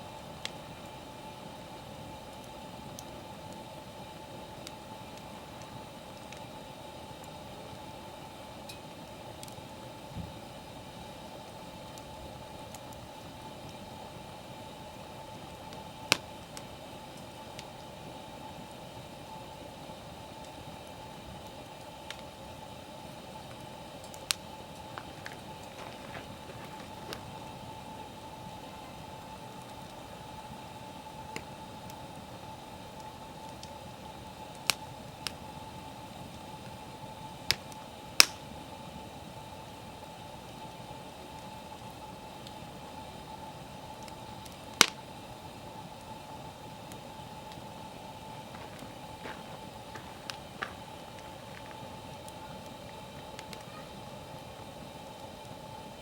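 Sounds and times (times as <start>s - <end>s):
fire crackles: 0.0s - 56.0s
wood fire hissing: 0.0s - 56.0s
loud pop of burning firewood: 37.5s - 38.5s, 44.8s - 45.0s.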